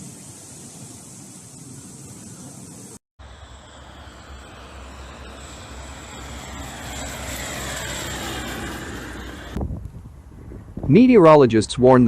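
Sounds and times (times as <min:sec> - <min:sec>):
vehicle engine passing: 0:03.2 - 0:09.6
whine sliding down in pitch: 0:03.2 - 0:09.7.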